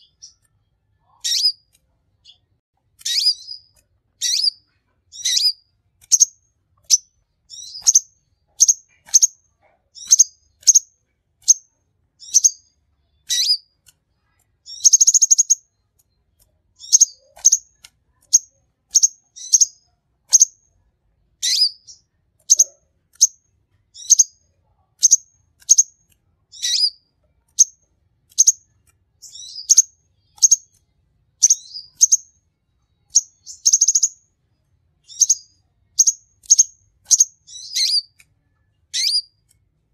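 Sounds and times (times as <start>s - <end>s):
sunbird high chirps: 1.0s - 2.4s, 3.0s - 6.3s, 6.9s - 9.4s, 10.0s - 11.6s, 12.2s - 13.7s, 14.6s - 15.7s, 16.8s - 17.7s, 18.3s - 20.6s, 21.4s - 23.4s, 24.0s - 24.4s, 26.5s - 27.0s, 29.2s - 30.8s, 31.4s - 32.3s, 33.0s - 34.2s, 35.0s - 38.2s, 38.9s - 39.3s.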